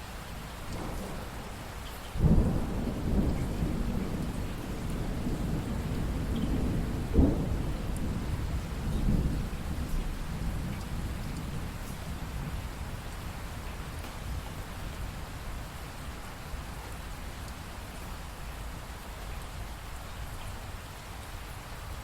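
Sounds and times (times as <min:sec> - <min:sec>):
steady rain: 0:00.0 - 0:22.0
thunder rumbling: 0:00.6 - 0:17.2.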